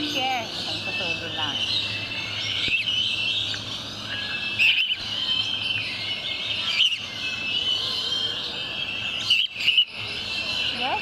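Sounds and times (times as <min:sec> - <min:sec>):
chorus of birds chirping: 0:00.0 - 0:11.0.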